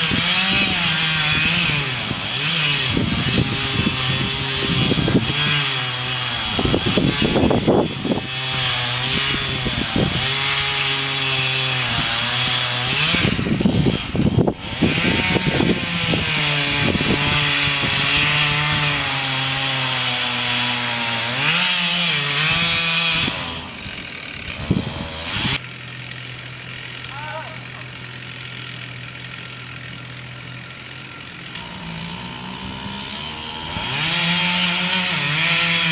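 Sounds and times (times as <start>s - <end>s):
chainsaw cutting into tree: 0.0s - 35.9s.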